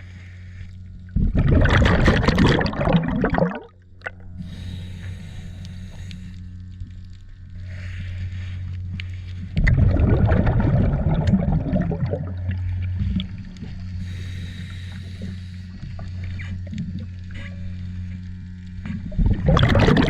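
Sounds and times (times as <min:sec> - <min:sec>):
rough gurgling rush: 0:01.2 - 0:03.7, 0:09.5 - 0:13.4, 0:19.1 - 0:20.0.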